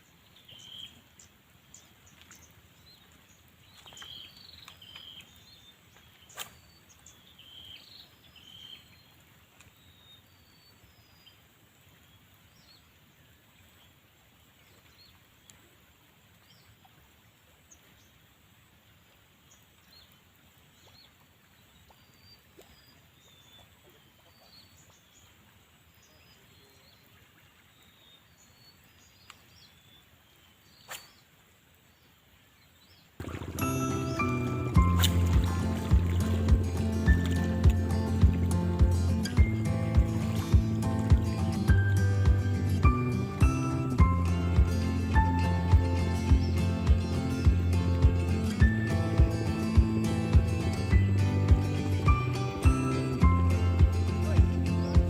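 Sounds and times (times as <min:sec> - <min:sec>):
background hiss: 0:00.0 - 0:55.0
short bird chirps: 0:30.6 - 0:31.3.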